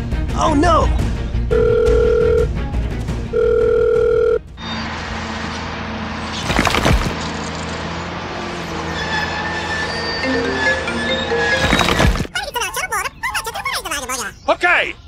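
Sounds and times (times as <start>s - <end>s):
telephone calling tone beep: 1.5s - 2.5s, 3.3s - 4.4s.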